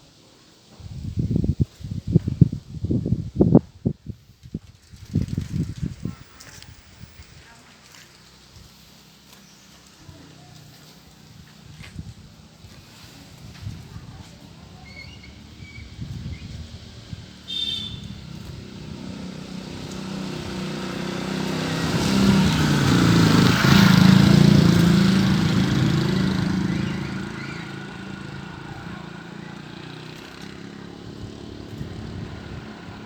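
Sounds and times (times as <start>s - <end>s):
vehicle engine passing by: 12.6s - 33.0s.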